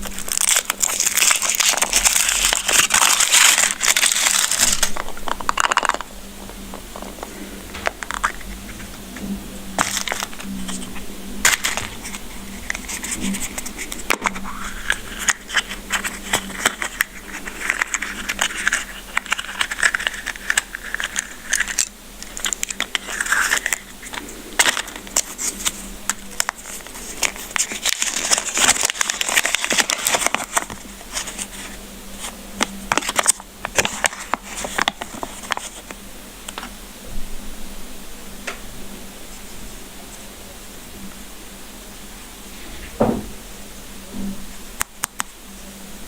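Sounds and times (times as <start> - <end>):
plastic wrapper crinkling: 0.0 - 36.7
faint steady hum: 0.0 - 46.0.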